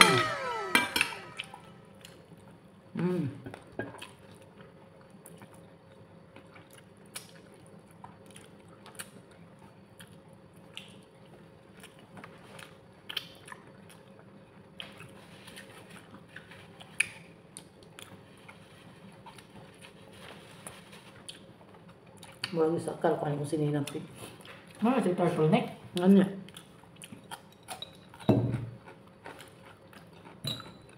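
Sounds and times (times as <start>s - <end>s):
chewing and biting: 6.4s - 11.1s, 11.7s - 20.0s, 26.5s - 30.8s.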